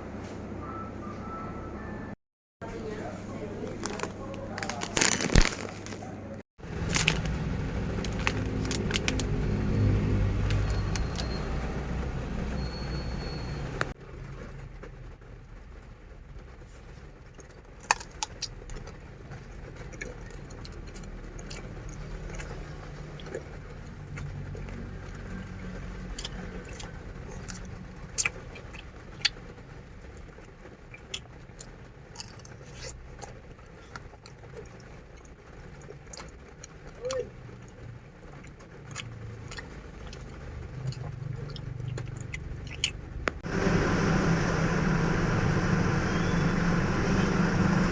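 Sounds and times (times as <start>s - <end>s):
vehicle engine rumbling: 2.8s - 47.9s.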